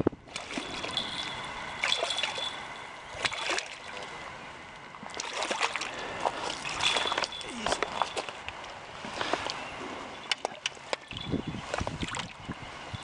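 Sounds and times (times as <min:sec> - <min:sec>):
fish thrashing in water: 0:00.3 - 0:04.2, 0:05.0 - 0:09.6.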